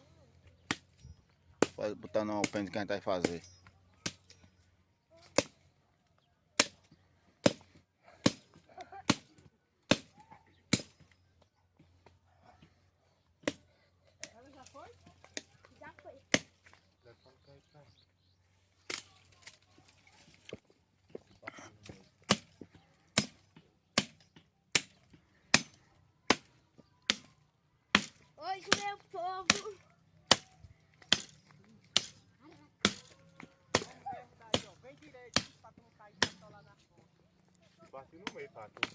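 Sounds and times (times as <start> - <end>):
axe chopping firewood: 0.6 - 1.0, 1.6 - 4.5, 5.2 - 5.7, 6.6 - 11.2, 13.4 - 14.5, 16.3 - 16.8, 21.8 - 36.6, 38.2 - 38.9
blade chopping wood: 9.9 - 10.1, 22.3 - 22.6, 23.2 - 27.3, 30.3 - 32.2, 32.8 - 35.6, 38.2 - 38.9.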